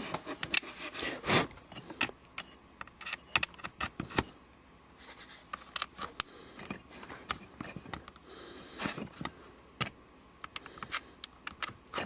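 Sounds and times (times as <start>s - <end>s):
small plastic parts clicking: 8.9s - 12.0s.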